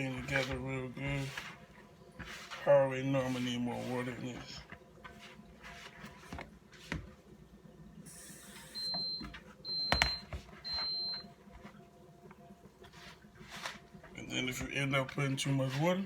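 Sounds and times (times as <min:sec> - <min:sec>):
dough mixed by hand in bowl: 0:00.0 - 0:16.0
electronic appliance beeps: 0:08.1 - 0:11.4.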